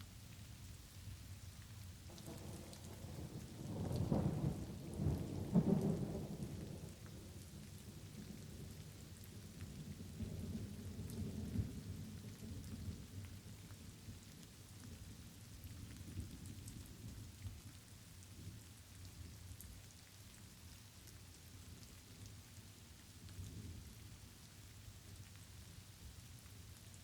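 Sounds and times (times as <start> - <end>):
light rain falling: 0.0 - 27.0
rolling thunder: 2.1 - 7.0.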